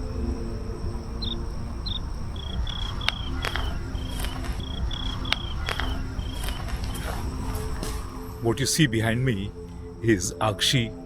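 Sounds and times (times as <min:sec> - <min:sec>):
low rumble: 0:00.0 - 0:08.4
cricket chirping: 0:00.0 - 0:11.0
sharp clicks: 0:01.2 - 0:08.0.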